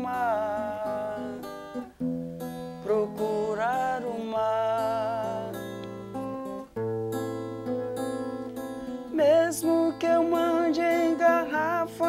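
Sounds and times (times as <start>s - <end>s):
man singing: 0.0s - 1.8s, 2.8s - 6.6s, 9.1s - 12.0s
acoustic guitar: 0.0s - 12.0s.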